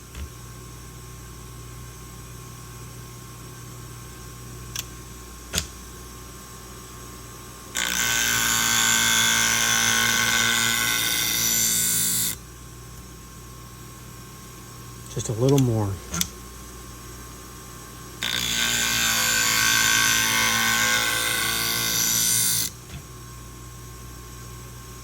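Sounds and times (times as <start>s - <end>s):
sharpener machine humming: 4.6s - 5.9s, 7.8s - 12.4s, 15.0s - 16.5s, 18.2s - 23.2s
scissor blade grinding on wheel: 7.8s - 12.4s, 18.2s - 22.8s.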